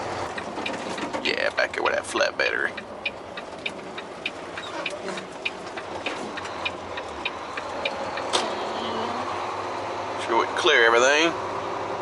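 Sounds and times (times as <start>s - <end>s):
diesel engine idling: 0.0s - 12.0s
turn-signal flasher ticking: 2.6s - 8.4s.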